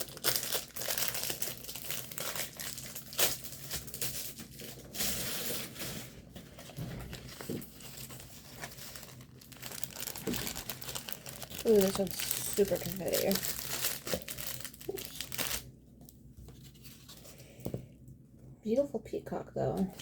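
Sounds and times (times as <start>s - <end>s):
plastic packaging crinkling: 0.0s - 15.7s.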